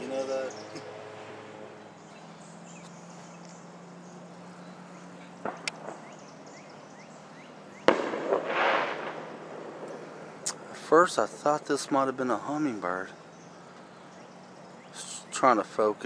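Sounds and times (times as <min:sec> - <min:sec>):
firework bang with rumbling echo: 0:05.4 - 0:06.1, 0:07.8 - 0:10.0
distant fireworks pops: 0:05.4 - 0:06.7, 0:07.8 - 0:11.8.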